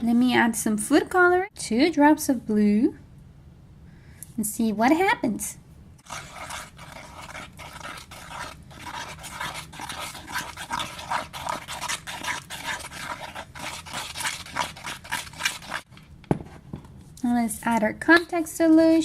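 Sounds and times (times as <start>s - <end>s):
sticky slime being stirred: 6.0s - 16.1s.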